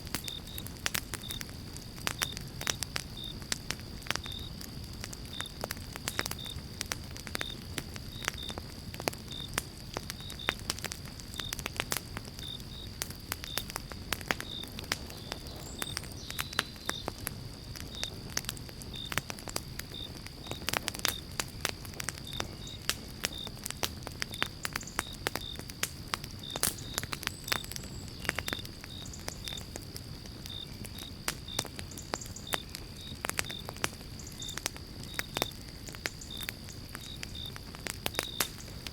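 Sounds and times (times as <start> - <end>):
campfire crackling and popping: 0.0 - 38.9
low rumble of flames: 0.0 - 38.9.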